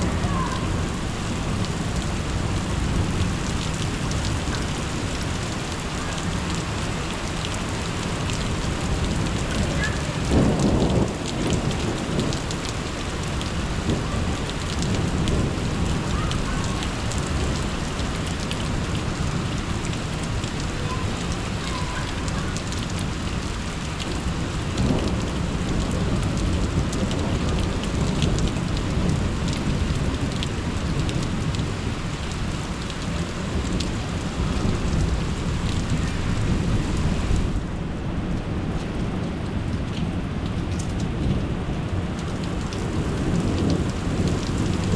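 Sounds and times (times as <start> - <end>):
heavy rain: 0.0 - 44.9
raindrops pattering on a surface: 0.0 - 44.9
rumbling thunder: 7.6 - 19.6, 22.2 - 32.0.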